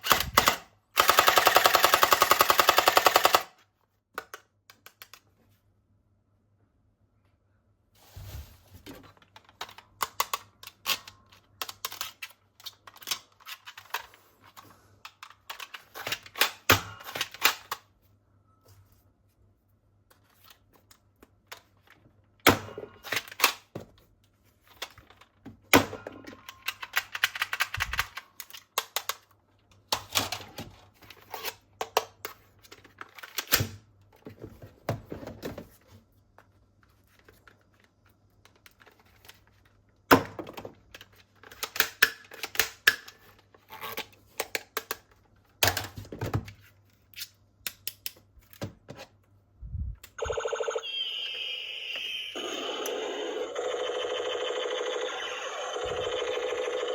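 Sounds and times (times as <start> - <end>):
plastic toys clicking and knocking: 9.3 - 17.8, 40.2 - 46.2.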